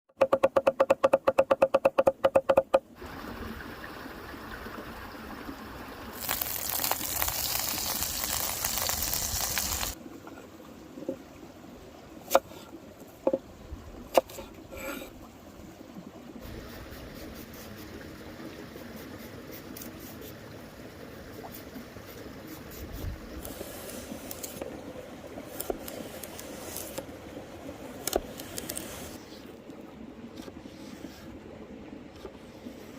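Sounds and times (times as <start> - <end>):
sharp knocks and clicks: 0.1 - 2.9
water running: 6.1 - 10.0.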